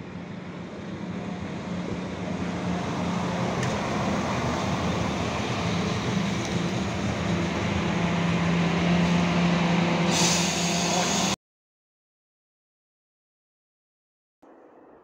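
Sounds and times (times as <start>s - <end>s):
passenger train passing: 0.0s - 11.4s.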